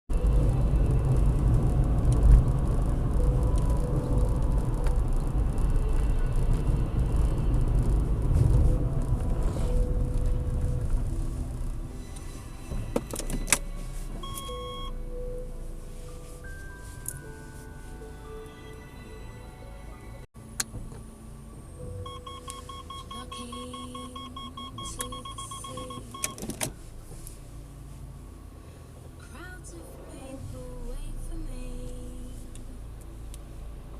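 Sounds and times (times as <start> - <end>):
car tyres and engine rumble: 0.1 - 18.8, 19.4 - 33.9
parking sensor beeping: 12.0 - 15.5, 21.7 - 26.6.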